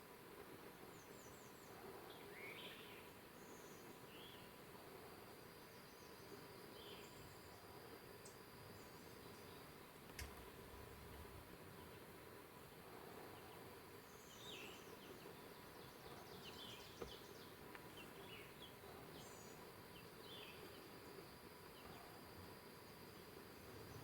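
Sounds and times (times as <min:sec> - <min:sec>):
quiet woodland hiss: 0:00.0 - 0:24.0
songbirds chirping and trilling: 0:00.0 - 0:24.0
faint click: 0:10.1 - 0:10.5.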